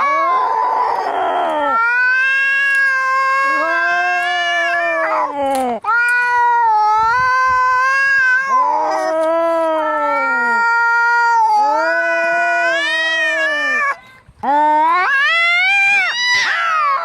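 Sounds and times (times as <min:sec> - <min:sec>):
cats yowling in a fight: 0:00.0 - 0:14.0, 0:14.8 - 0:17.0.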